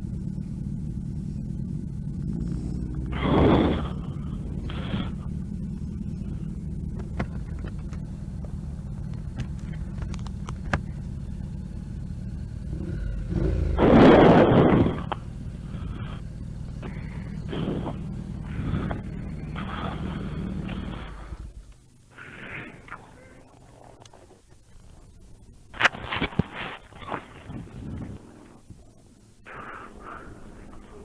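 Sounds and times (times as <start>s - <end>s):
motorcycle engine running: 0.0s - 31.0s
wind noise: 13.8s - 15.2s, 25.7s - 28.8s.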